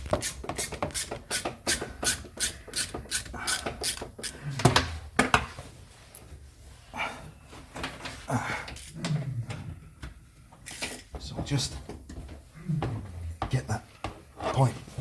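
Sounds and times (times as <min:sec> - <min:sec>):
hand tools clicking and scraping: 0:00.0 - 0:04.9.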